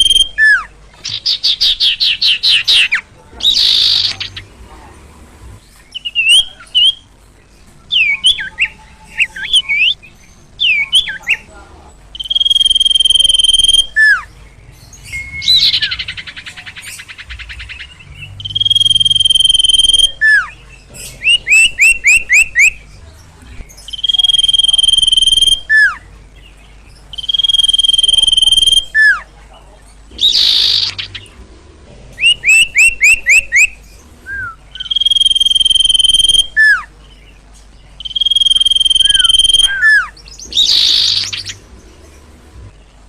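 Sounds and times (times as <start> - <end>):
bird high whistles: 12.2 - 14.3, 18.4 - 20.5, 23.9 - 26.0, 27.1 - 29.2, 32.2 - 36.9, 38.0 - 41.6
bird harsh buzzing rattle: 30.1 - 36.7, 37.5 - 42.7
bird downward-sliding whistles: 32.2 - 36.9.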